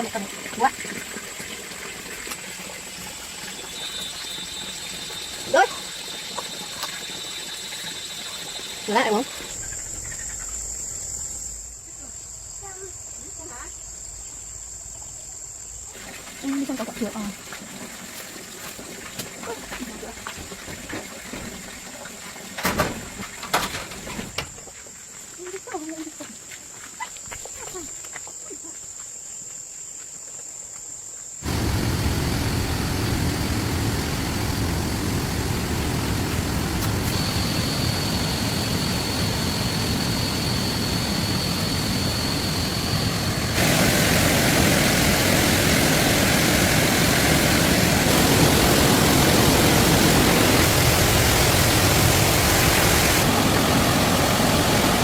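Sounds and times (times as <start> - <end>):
high-pitched insect chorus: 2.2 - 17.4, 24.2 - 55.0
loud rushing noise with rumble: 31.4 - 55.0.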